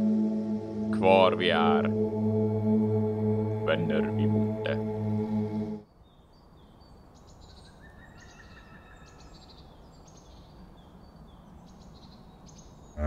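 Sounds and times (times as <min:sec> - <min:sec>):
small birds chirping and trilling: 0:05.9 - 0:13.0.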